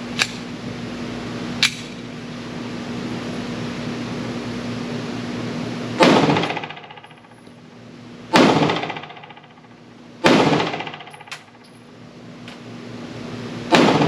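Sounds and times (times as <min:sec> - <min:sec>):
ventilation fan hum: 0:00.0 - 0:14.0
pistol shots reverberating: 0:06.0 - 0:07.1, 0:08.3 - 0:09.6, 0:10.2 - 0:11.5, 0:13.7 - 0:14.0.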